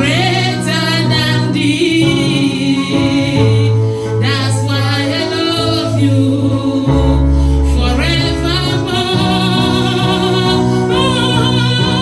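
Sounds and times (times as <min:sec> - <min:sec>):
instrumental backing: 0:00.0 - 0:12.0
person singing with vibrato: 0:00.0 - 0:12.0.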